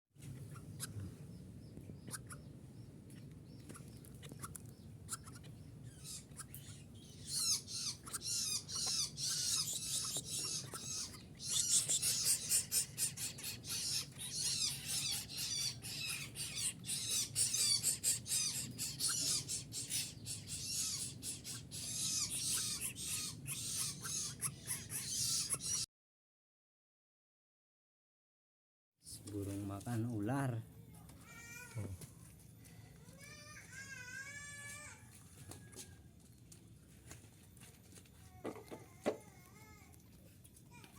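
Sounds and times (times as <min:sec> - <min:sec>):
low steady hum: 0:00.2 - 0:25.5
bird chick chirping: 0:00.4 - 0:25.9.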